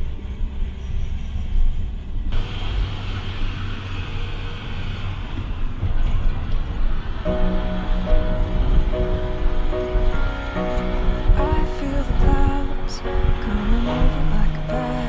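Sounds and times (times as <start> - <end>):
car engine and tyres rumbling: 0.0 - 11.4.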